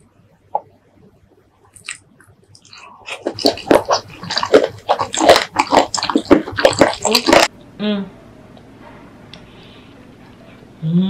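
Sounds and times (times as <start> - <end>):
wet squelching chewing: 1.7 - 7.5.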